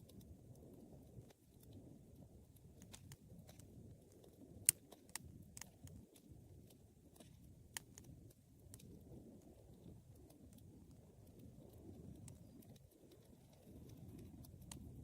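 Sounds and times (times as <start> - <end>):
fire flames rumbling: 0.0 - 15.0
wood crackling and popping: 0.0 - 15.0.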